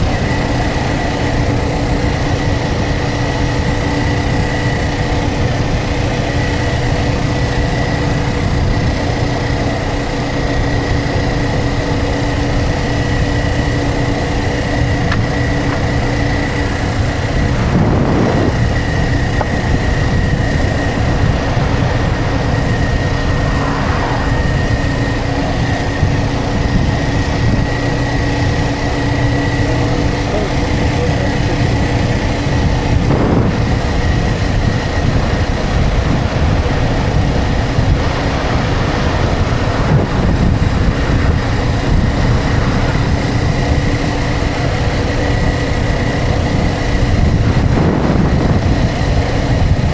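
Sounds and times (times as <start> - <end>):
motorcycle engine drone: 0.0 - 49.9
road and wind noise: 0.0 - 49.9
loud whoosh: 16.8 - 27.0.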